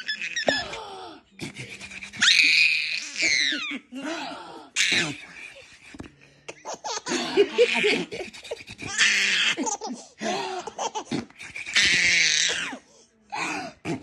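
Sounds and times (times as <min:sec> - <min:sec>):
baby laughing with squeals: 0:00.0 - 0:00.6, 0:02.2 - 0:03.8, 0:11.7 - 0:12.7.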